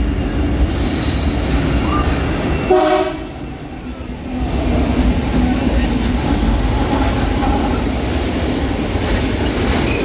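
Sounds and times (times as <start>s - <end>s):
freight train rumbling: 0.0s - 10.0s
train horn toot: 2.7s - 3.4s.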